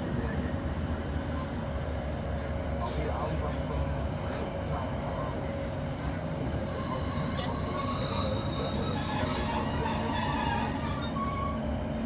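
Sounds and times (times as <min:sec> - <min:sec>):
train running rumble: 0:00.0 - 0:12.0
train brakes squealing: 0:03.7 - 0:05.3, 0:06.0 - 0:11.8.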